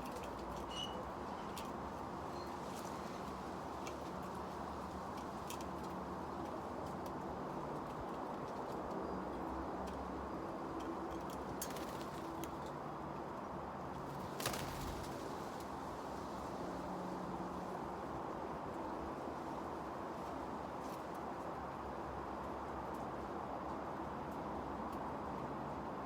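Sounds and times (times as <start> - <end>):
wind: 0.0 - 26.0.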